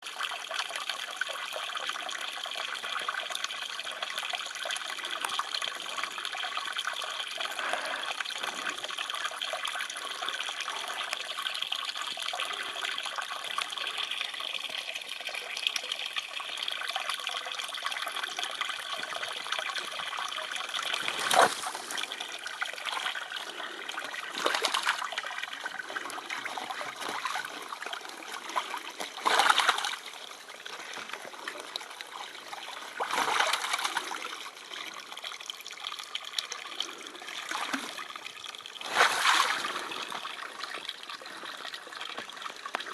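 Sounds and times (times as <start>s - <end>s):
shallow water trickling: 0.1s - 42.9s
water splashes: 19.7s - 42.9s.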